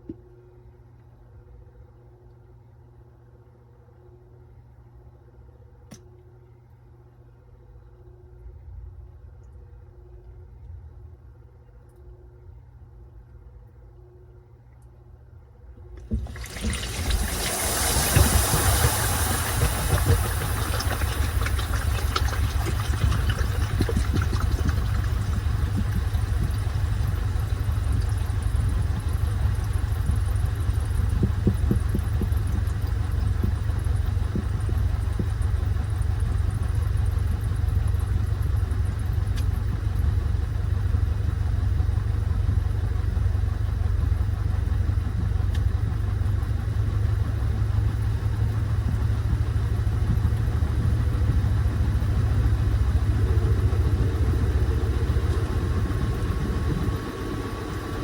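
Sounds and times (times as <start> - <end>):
washing machine humming: 5.8 - 58.0
hiss: 16.7 - 22.0.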